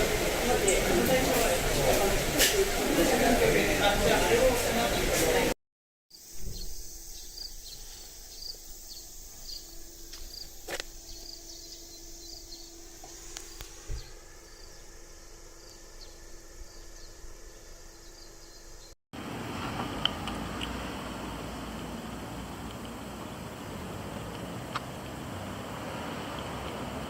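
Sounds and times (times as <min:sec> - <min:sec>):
insects chirping: 0:06.1 - 0:19.0.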